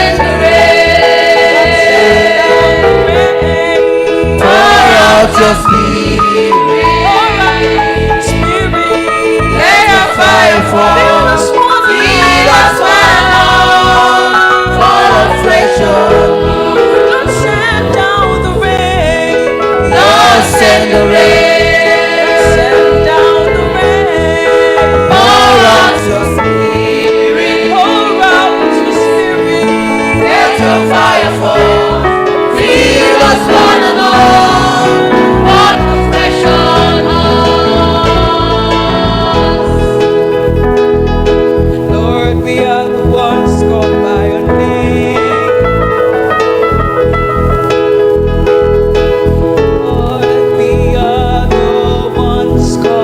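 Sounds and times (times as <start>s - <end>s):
instrumental backing with bass: 0.0s - 53.0s
person singing: 1.4s - 31.8s, 41.8s - 46.3s, 49.6s - 53.0s.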